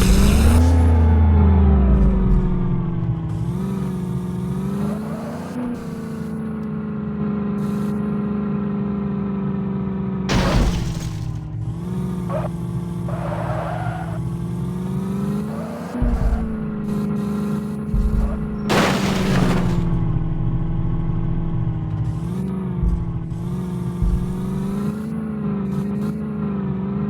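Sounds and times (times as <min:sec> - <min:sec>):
tractor engine running: 0:00.0 - 0:09.2, 0:10.0 - 0:27.0
loud crash-like burst: 0:10.3 - 0:11.4, 0:18.7 - 0:20.0.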